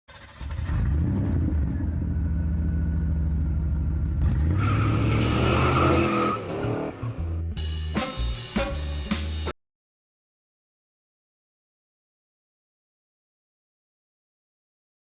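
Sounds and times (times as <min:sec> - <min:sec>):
car engine revving: 0:04.0 - 0:07.4.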